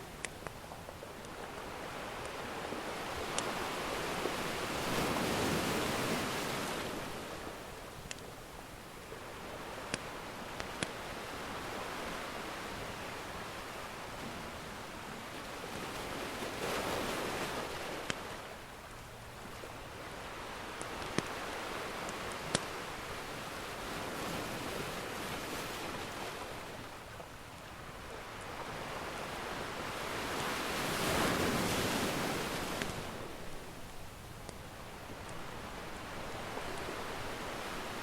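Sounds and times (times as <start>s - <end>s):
ocean surf washing in: 1.6s - 7.7s, 28.2s - 33.7s.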